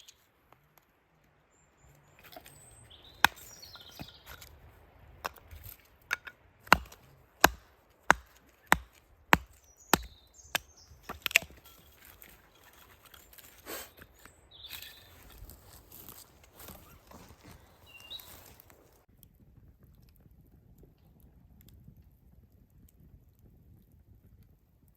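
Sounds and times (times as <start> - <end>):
wood being chopped: 3.1 - 4.5, 5.2 - 12.3.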